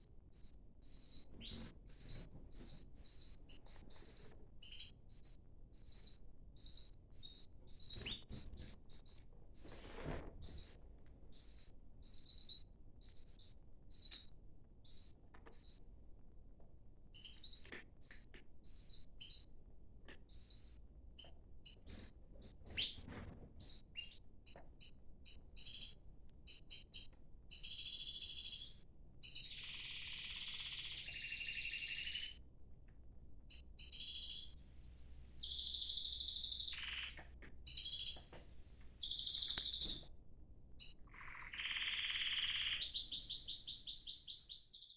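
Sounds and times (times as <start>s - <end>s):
canaries chirping and trilling: 1.1s - 4.9s, 29.4s - 32.4s, 35.4s - 40.1s, 41.1s - 44.9s.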